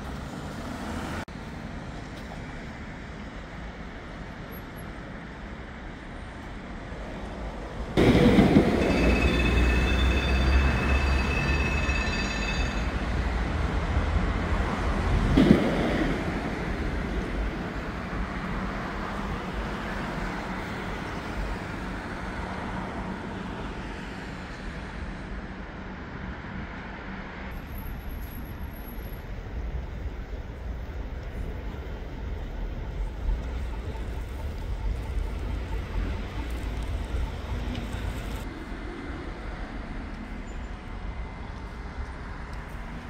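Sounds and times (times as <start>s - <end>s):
high whine: 8.0s - 13.4s.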